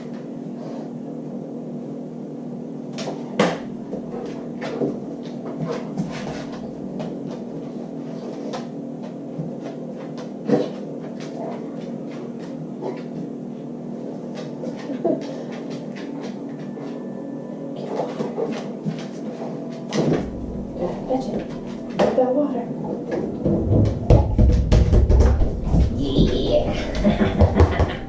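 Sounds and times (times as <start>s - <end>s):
steady low hum: 0.0s - 28.0s
knocks and clatter: 23.2s - 26.4s.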